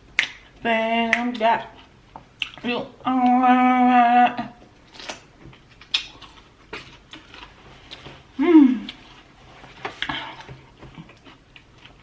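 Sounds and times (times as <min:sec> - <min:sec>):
eating clicks and smacks: 0:00.2 - 0:01.5, 0:02.2 - 0:02.7, 0:05.0 - 0:07.3.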